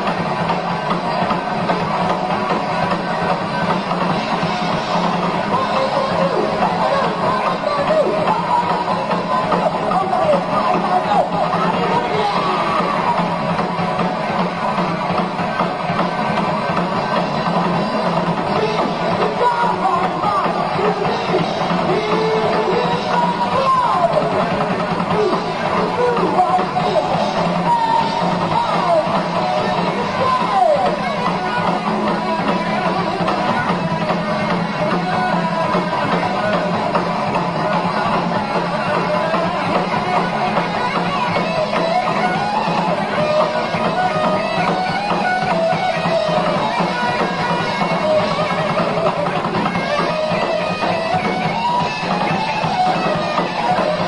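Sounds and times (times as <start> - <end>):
bending lead guitar melody: 0.0 - 54.0
heavy metal band playing live: 0.0 - 54.0.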